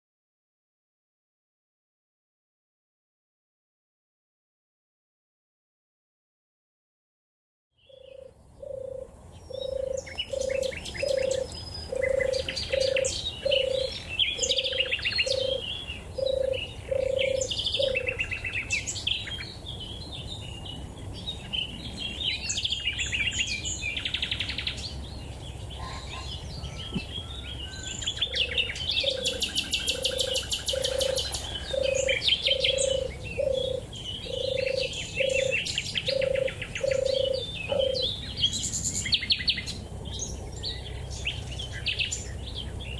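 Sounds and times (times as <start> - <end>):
songbirds chirping: 7.7 - 42.9
dove purring: 8.0 - 18.2, 28.3 - 38.1.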